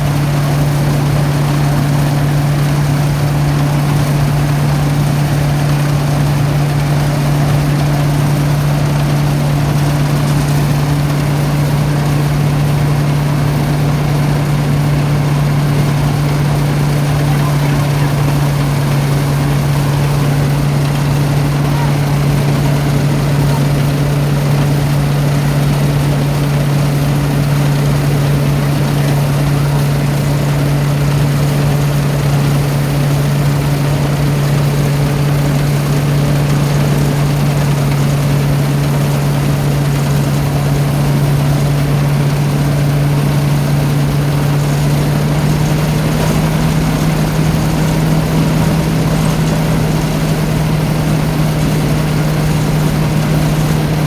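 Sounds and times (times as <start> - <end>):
threshing machine engine humming: 0.0 - 54.0
threshing drum clattering: 1.4 - 24.8.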